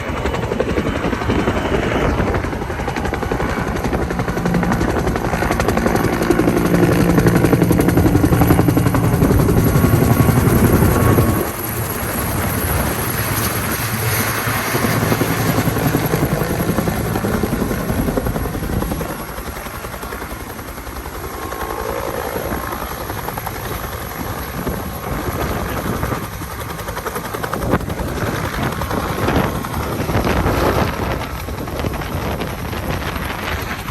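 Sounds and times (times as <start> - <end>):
helicopter rotor and engine: 0.0 - 33.9.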